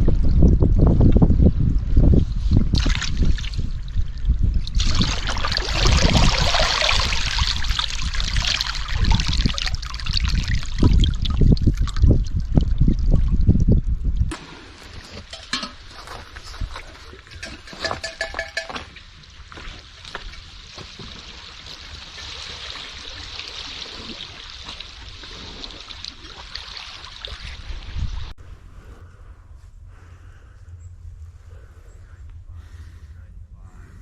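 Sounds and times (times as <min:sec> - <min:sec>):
water trickling and splashing: 0:00.0 - 0:28.4
loud low rumble: 0:28.4 - 0:34.0.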